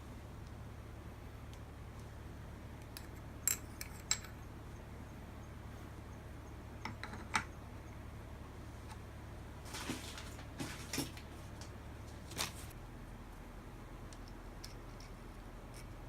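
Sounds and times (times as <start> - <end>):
steady low hum: 0.0 - 16.0
metal parts clinking: 3.0 - 4.4.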